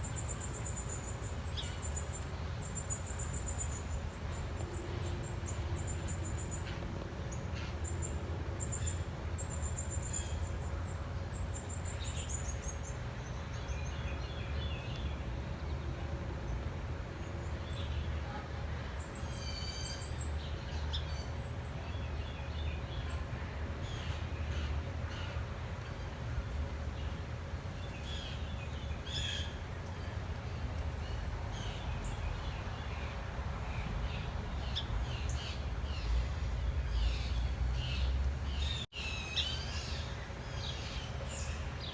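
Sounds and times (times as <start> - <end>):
small birds chirping and trilling: 27.8 - 41.9.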